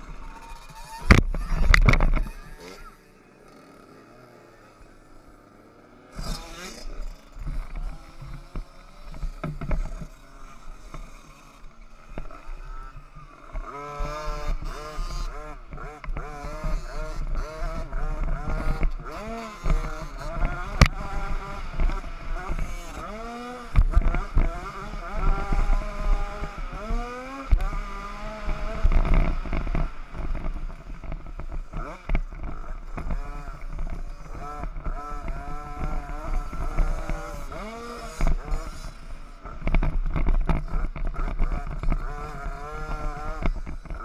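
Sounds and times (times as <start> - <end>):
wind rumbling on microphone: 0.0 - 2.5
motocross bikes revving: 0.0 - 44.0.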